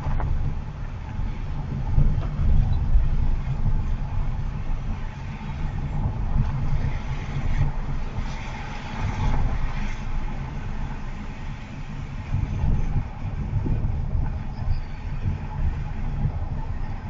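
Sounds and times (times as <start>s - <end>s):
car road rumble and tyre noise: 0.0s - 17.0s.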